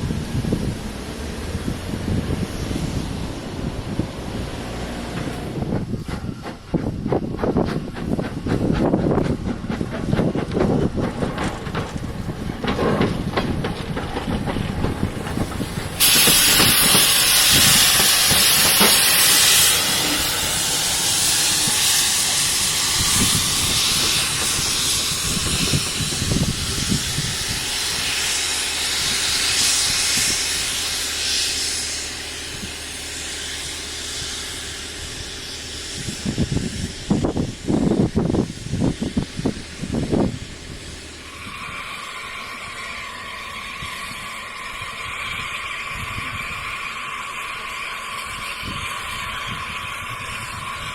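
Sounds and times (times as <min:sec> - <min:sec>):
low rumble: 0:00.0 - 0:07.5
loud steam hiss: 0:00.0 - 0:50.9.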